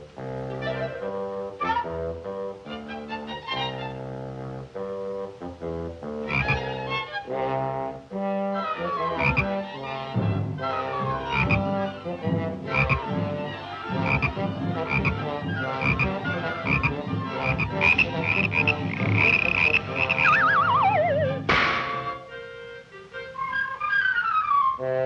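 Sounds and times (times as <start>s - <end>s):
low brass bouncing line: 4.4s - 22.3s
wobbling note sliding down: 20.2s - 21.5s
percussive hits: 21.4s - 22.1s.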